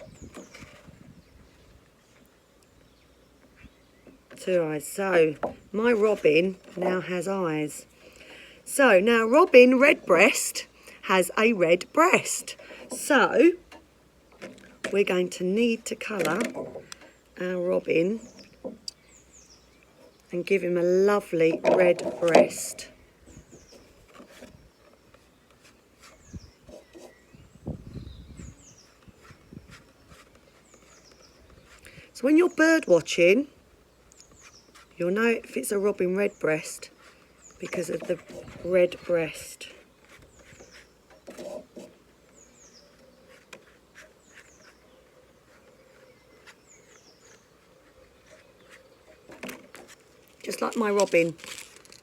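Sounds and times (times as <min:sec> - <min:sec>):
small bird chirps: 0:34.1 - 0:39.4, 0:40.0 - 0:41.6, 0:42.3 - 0:49.3.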